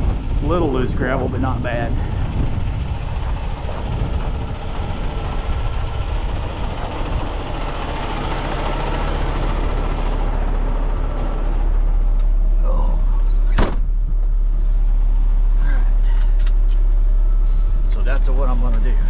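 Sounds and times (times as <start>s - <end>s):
wind buffeting microphone: 0.0s - 12.1s
truck diesel engine running: 0.0s - 19.0s.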